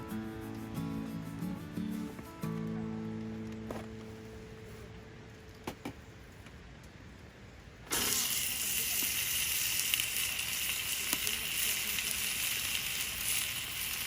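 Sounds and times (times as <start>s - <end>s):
steak sizzling in a hot pan: 7.9s - 14.0s.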